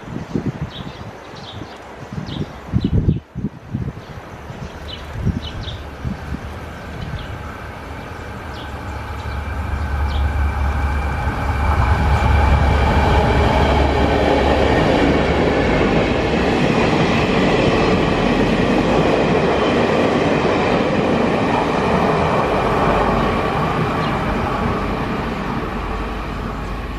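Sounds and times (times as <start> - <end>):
train low rumble: 5.1 - 26.9
train wheels on rails: 5.9 - 26.9.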